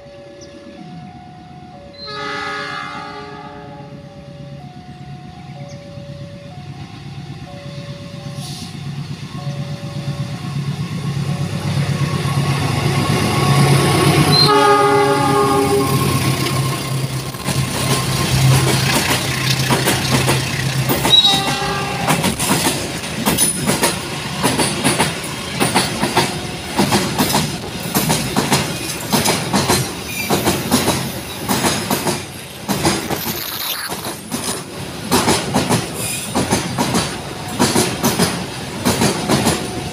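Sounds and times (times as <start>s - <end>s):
locomotive horn: 1.9s - 4.0s, 14.2s - 17.0s, 21.0s - 22.4s
locomotive engine hum: 2.5s - 39.9s
train wheels clattering over rail joints: 16.5s - 33.4s, 34.0s - 39.9s.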